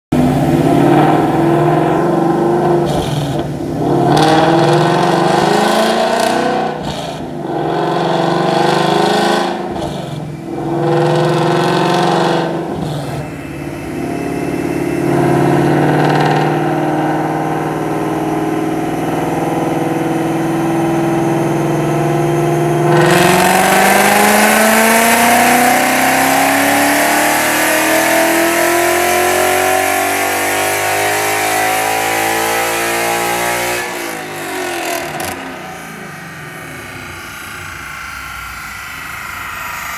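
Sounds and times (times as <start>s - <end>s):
car engine revving on dyno: 0.1s - 39.9s.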